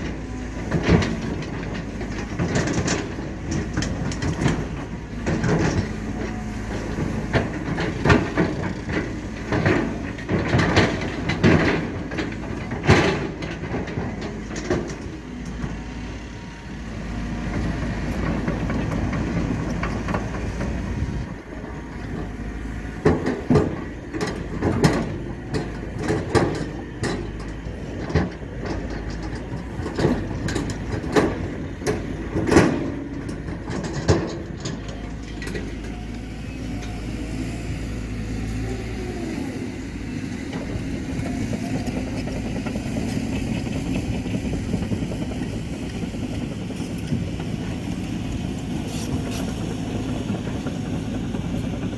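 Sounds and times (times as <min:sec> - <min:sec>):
diesel earthmoving machinery running: 0:00.0 - 0:51.9
metallic clanks and knocks: 0:23.0 - 0:37.0.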